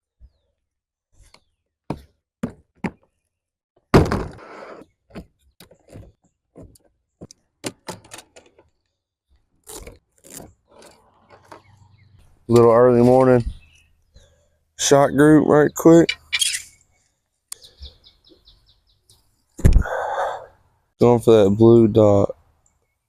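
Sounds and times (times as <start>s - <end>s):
loud thump: 3.9s - 4.4s.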